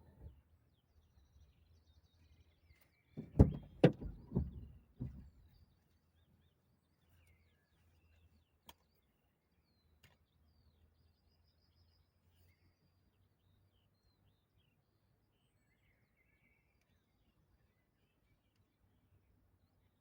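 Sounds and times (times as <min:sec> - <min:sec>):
loud knocks and thumps: 0:03.2 - 0:05.4.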